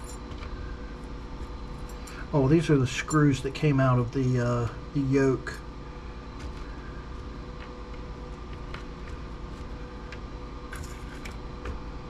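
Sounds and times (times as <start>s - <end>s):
small metal parts clinking: 0.0s - 0.4s, 10.7s - 11.4s
steady background hum: 0.0s - 12.0s.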